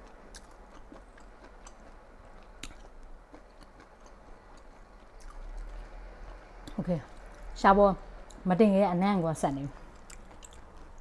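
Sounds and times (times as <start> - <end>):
person chewing food: 0.0 - 7.5, 9.8 - 11.0.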